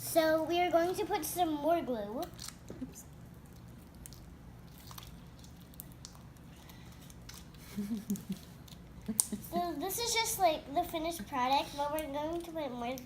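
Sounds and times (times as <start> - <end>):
low steady hum: 0.0 - 13.0
hands squishing sticky slime: 2.0 - 10.0.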